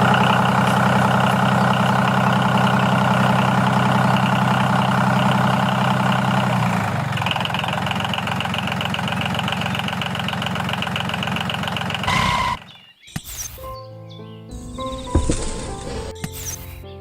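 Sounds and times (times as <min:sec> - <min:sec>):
small engine running: 0:00.0 - 0:12.6.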